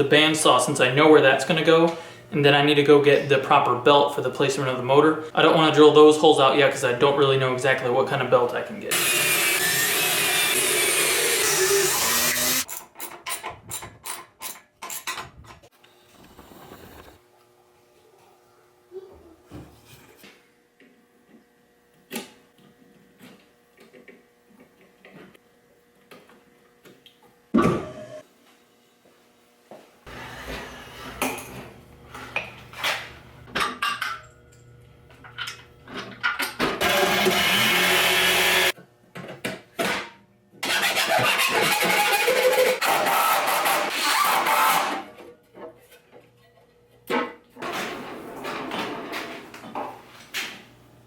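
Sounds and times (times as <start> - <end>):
power drill boring through wood: 8.9 - 12.7, 36.8 - 38.8.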